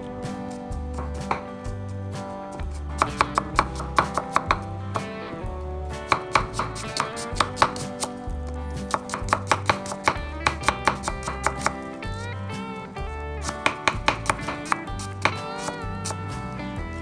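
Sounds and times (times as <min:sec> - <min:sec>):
guitar music: 0:00.0 - 0:17.0
knife chopping on wooden board: 0:02.6 - 0:05.1, 0:06.1 - 0:08.1, 0:08.8 - 0:11.8, 0:13.4 - 0:16.2.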